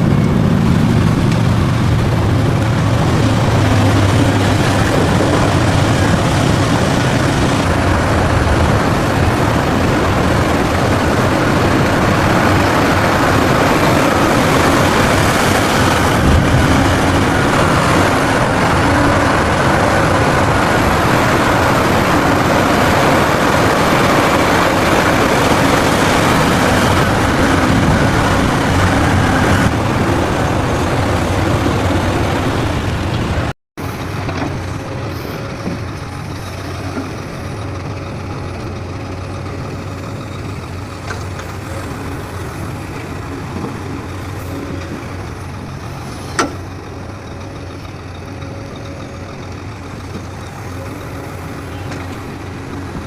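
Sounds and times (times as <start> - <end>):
diesel engines running: 0.0 - 53.0.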